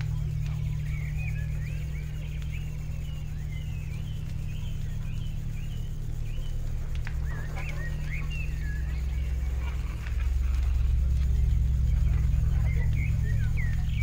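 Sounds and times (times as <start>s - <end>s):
birds chirping: 0.0s - 14.0s
loud low drone: 0.0s - 14.0s.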